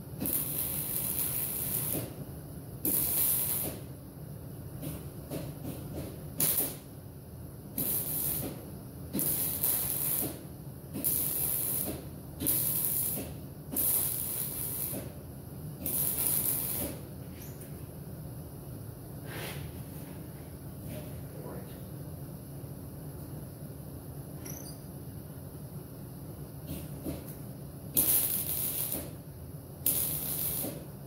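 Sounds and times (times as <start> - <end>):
welder crackling hiss: 0.0 - 3.9, 6.4 - 6.9, 7.7 - 15.2, 15.8 - 17.1, 26.7 - 31.0
steady low hum: 0.0 - 31.0.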